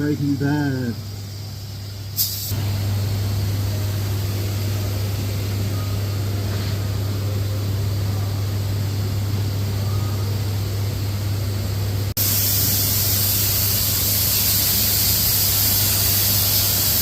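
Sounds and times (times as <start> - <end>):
electrical hum with hiss: 0.0 - 17.0
sharp hiss: 0.2 - 2.8, 12.2 - 17.0.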